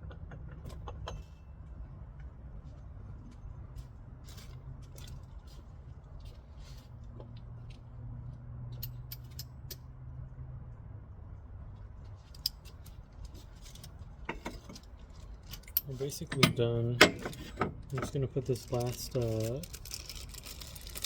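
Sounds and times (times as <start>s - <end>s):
hand tools clicking and tapping: 15.6s - 18.2s.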